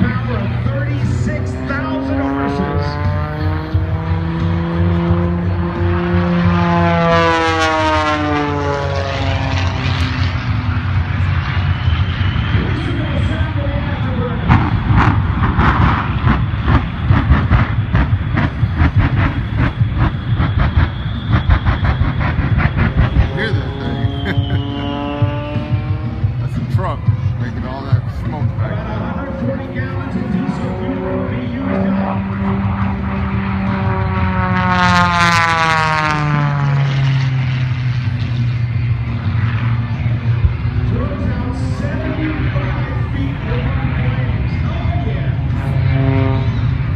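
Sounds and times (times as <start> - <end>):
jet engines rumbling: 0.0 - 46.9
propeller airplane flying past: 0.0 - 46.9.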